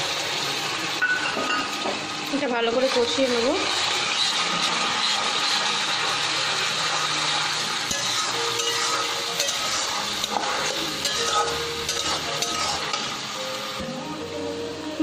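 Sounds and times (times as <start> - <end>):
paste sizzling in hot oil: 0.0 - 14.2
spatula scraping and tapping pan: 7.8 - 13.1.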